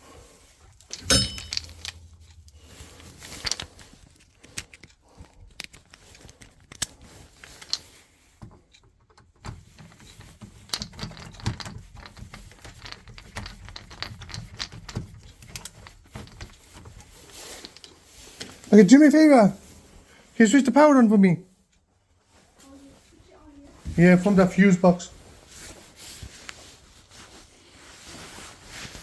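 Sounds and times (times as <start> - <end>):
tools clicking and rattling: 0.8 - 18.7.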